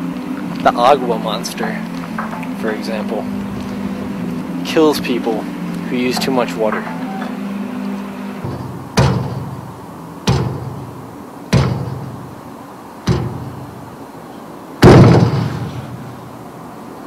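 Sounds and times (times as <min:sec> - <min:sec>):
heavy ringing knocks: 0:02.1 - 0:09.6.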